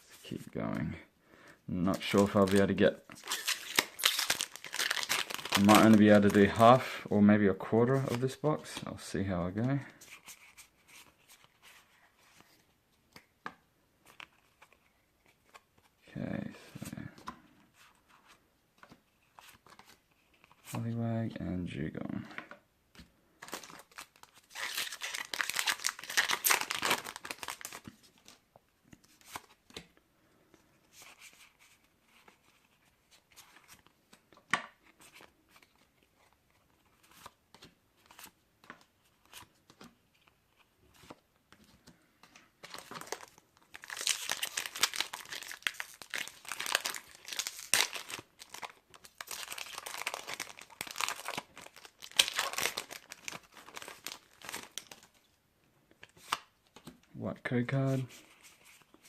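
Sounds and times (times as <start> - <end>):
foil wrappers tearing and crinkling: 2.0 - 6.6, 23.5 - 27.8, 42.7 - 55.1.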